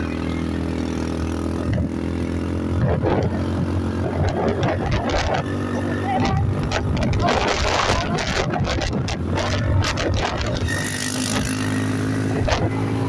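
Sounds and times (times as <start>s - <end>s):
atv engine running: 0.0s - 13.0s
scratchy noise: 4.3s - 12.7s.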